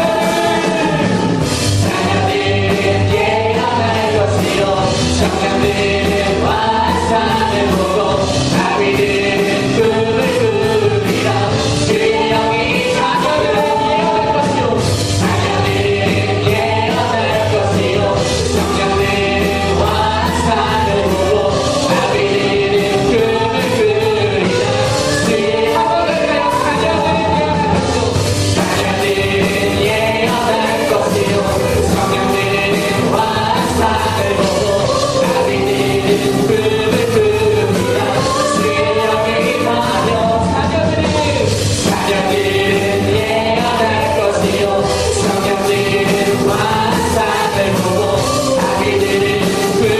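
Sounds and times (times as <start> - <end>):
band accompaniment: 0.0 - 49.9
group singing worship song: 0.0 - 49.9
steady drum beat: 0.0 - 49.9.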